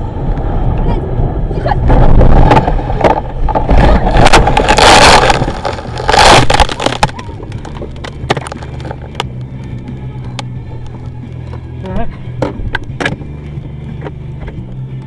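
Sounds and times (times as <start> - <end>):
low engine hum: 0.0 - 15.0
car collision crunching and scraping: 2.0 - 9.3.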